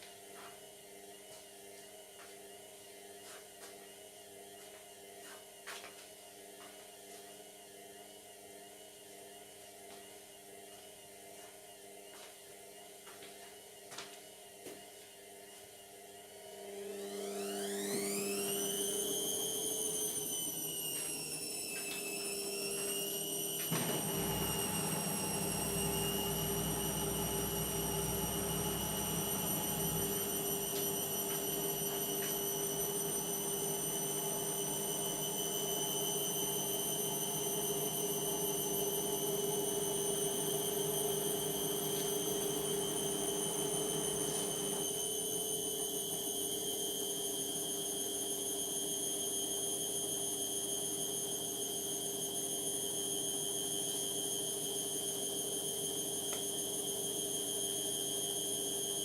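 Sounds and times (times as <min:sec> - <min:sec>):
washing machine motor whine: 0:13.9 - 0:59.0.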